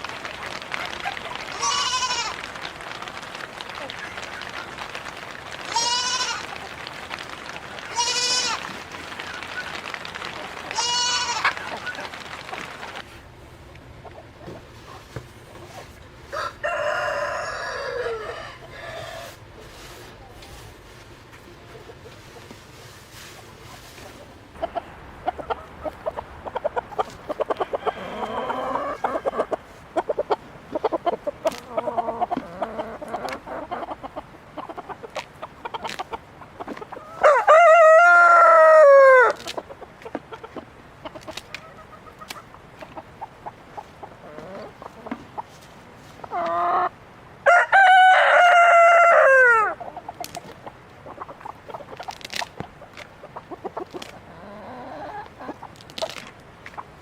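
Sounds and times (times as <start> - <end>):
rooster crowing: 16.3 - 19.4, 27.6 - 29.6, 37.2 - 39.4, 47.4 - 49.8
hens clucking softly: 21.6 - 47.0, 48.3 - 57.0.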